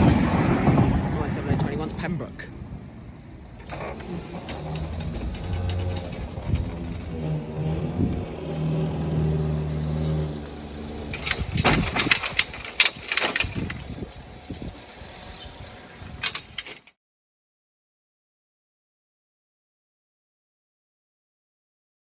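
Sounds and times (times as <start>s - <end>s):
diesel train engine running: 0.0s - 16.6s.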